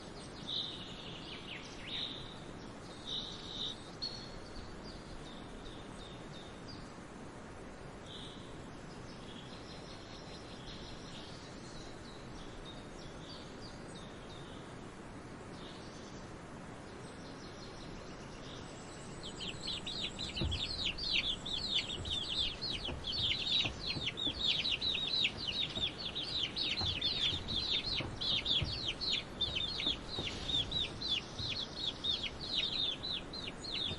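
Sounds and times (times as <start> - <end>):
high bird chirps: 19.1 - 33.9
chicks peeping rapidly: 19.2 - 33.9.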